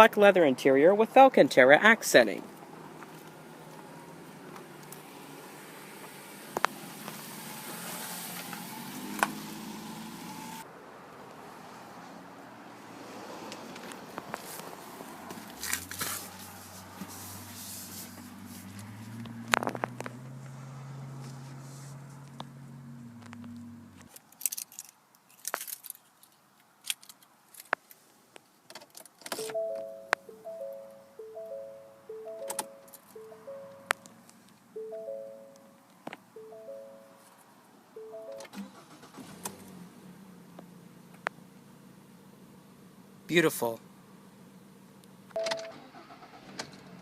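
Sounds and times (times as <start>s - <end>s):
car engine idling: 38.0s - 47.0s.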